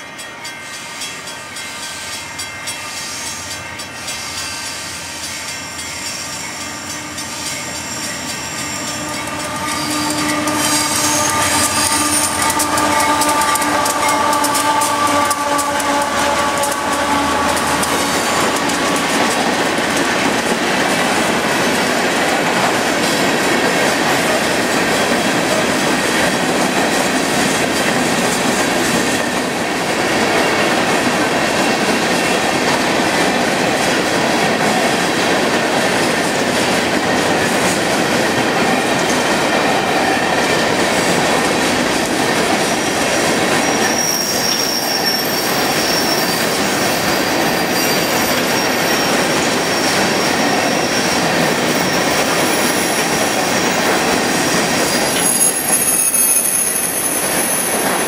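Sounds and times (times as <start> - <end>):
train wheels rolling on rail: 0.0 - 58.0
high wheel squeal: 6.0 - 19.3, 43.6 - 58.0.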